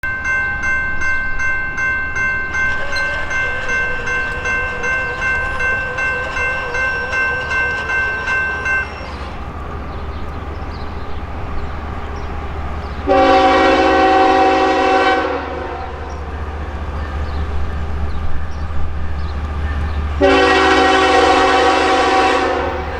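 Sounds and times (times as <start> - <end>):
diesel locomotive rumble: 0.0 - 22.9
locomotive bell ringing: 0.0 - 22.9
locomotive horn blast: 2.7 - 10.0, 13.0 - 16.1, 20.2 - 22.9.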